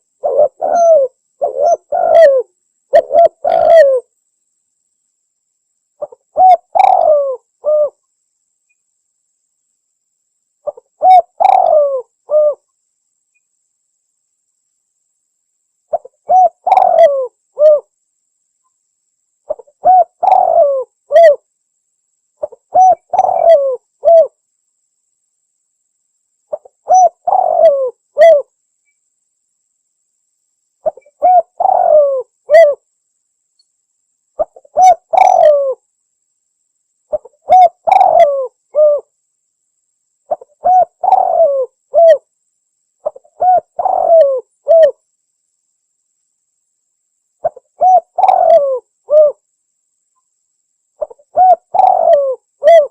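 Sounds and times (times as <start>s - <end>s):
dove cooing: 0.0s - 4.1s, 6.0s - 8.0s, 10.6s - 12.7s, 15.9s - 17.9s, 19.5s - 21.4s, 22.4s - 24.4s, 26.5s - 28.5s, 30.8s - 32.8s, 34.4s - 35.8s, 37.1s - 39.1s, 40.3s - 42.2s, 43.0s - 45.0s, 47.4s - 49.4s, 51.0s - 52.9s.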